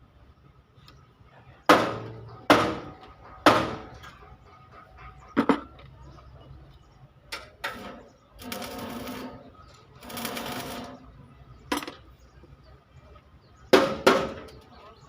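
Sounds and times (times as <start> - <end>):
sharp knocks: 1.7 - 4.0
power tool chattering: 7.6 - 11.1.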